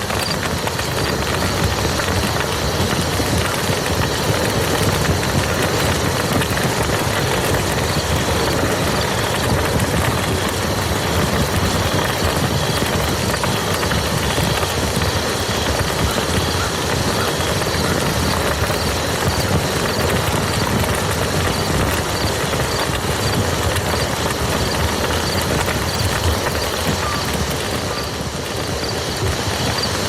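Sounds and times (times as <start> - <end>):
heavy rain on muddy ground: 0.0 - 30.0.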